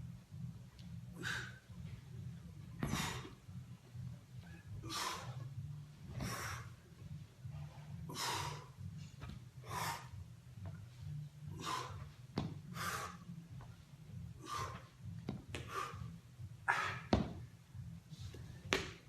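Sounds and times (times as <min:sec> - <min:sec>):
low steady hum: 0:00.0 - 0:19.0
person breathing hard: 0:01.1 - 0:02.0, 0:04.4 - 0:05.6, 0:07.9 - 0:10.3, 0:11.4 - 0:13.5, 0:14.2 - 0:17.1.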